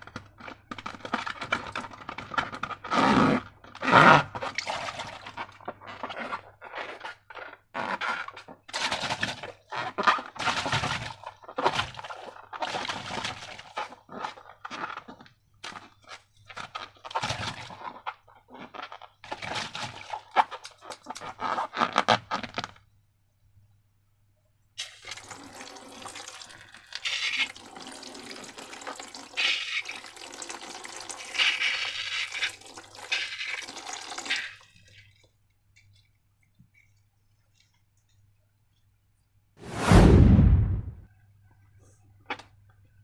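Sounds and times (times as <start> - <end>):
liquid pouring and gurgling: 4.5 - 5.6, 24.8 - 38.1.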